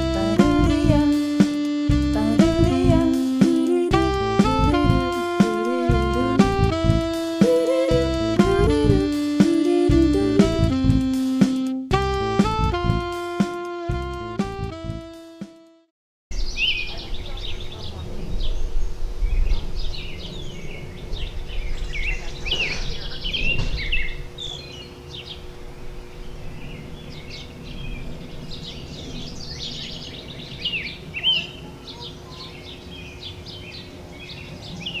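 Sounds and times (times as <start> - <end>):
low rumble: 7.9 - 9.1
small birds chirping: 16.3 - 35.0.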